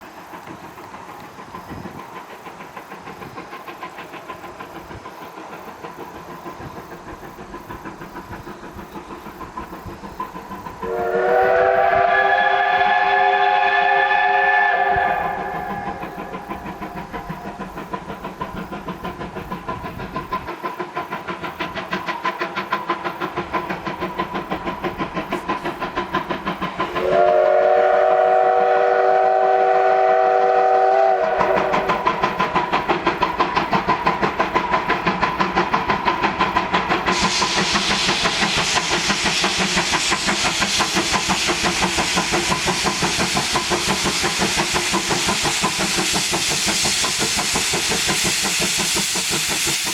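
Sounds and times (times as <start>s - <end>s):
steam hiss: 0.0s - 49.9s
steam locomotive chuffing: 0.0s - 49.9s
steam whistle blast: 10.8s - 16.5s, 27.0s - 32.1s.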